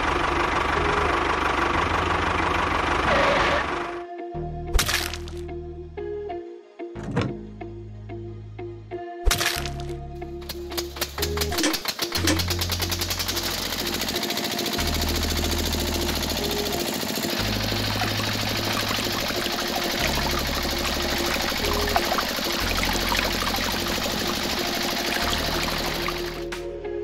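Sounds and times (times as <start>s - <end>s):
small pump motor running: 0.0s - 4.0s, 10.5s - 26.5s
background music: 0.0s - 27.0s
water pouring into metal buckets: 17.5s - 26.4s.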